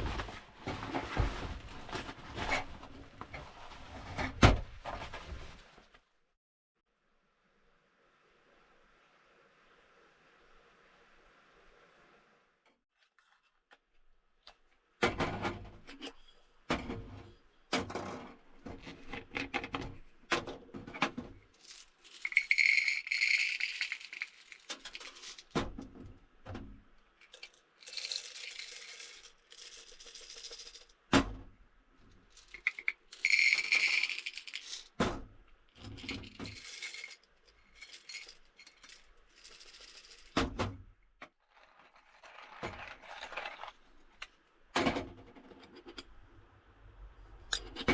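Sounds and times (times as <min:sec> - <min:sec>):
small objects knocking and clinking: 0:21.6 - 0:25.6, 0:27.2 - 0:31.0, 0:32.3 - 0:35.0, 0:35.8 - 0:40.4.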